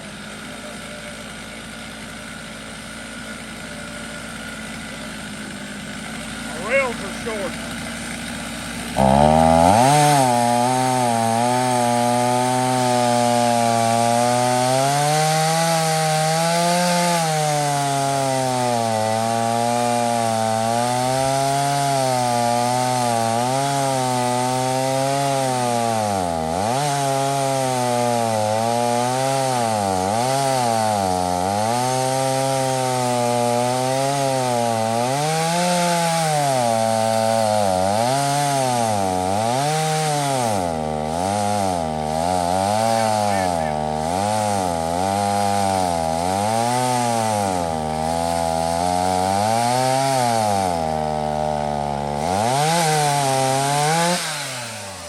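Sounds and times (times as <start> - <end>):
chainsaw ripping a log: 0.0 - 55.0.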